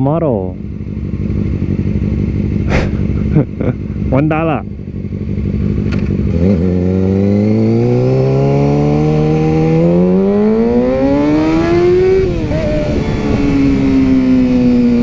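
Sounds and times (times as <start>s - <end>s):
motorcycle engine accelerating: 0.4s - 15.0s
wind noise: 9.6s - 15.0s.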